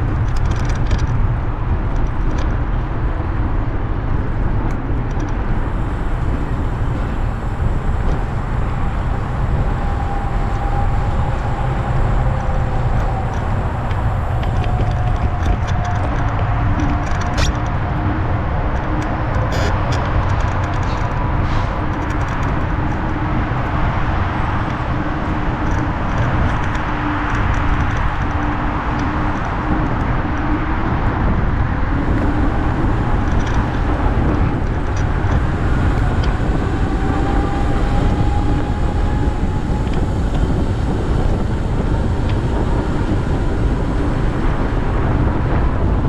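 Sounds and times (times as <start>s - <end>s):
light clicks and rattles: 0.0s - 2.6s, 9.9s - 23.8s
bicycle tyre and road noise: 0.0s - 46.0s
wind rumble on microphone: 0.0s - 46.0s.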